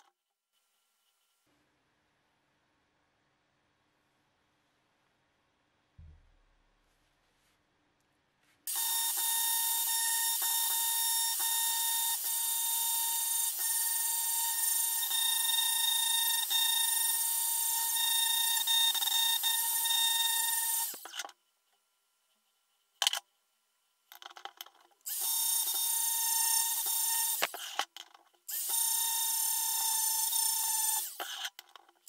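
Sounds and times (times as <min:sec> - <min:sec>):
power tool whining: 0:08.7 - 0:21.2, 0:25.1 - 0:27.8, 0:28.5 - 0:31.5.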